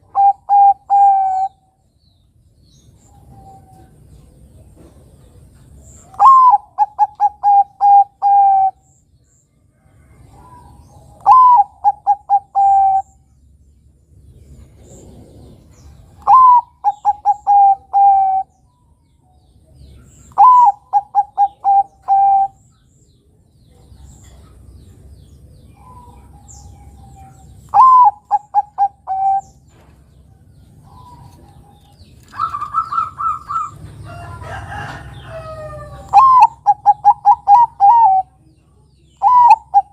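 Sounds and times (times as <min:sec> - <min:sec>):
dove cooing: 0:00.0 - 0:01.6, 0:06.0 - 0:08.8, 0:10.2 - 0:13.2, 0:14.7 - 0:18.6, 0:20.1 - 0:22.6, 0:25.8 - 0:29.7, 0:30.8 - 0:38.4, 0:39.2 - 0:39.9
rough bird sound: 0:00.0 - 0:38.4, 0:39.0 - 0:39.9.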